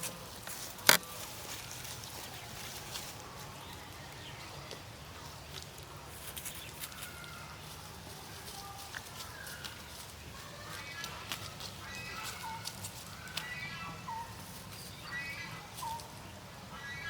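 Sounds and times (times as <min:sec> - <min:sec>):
chirping bird calls: 0:09.2 - 0:17.0.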